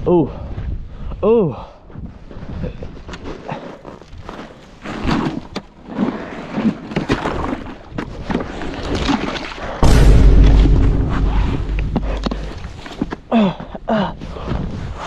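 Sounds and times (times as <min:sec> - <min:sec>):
crunching and scraping on ice: 0:03.0 - 0:08.9.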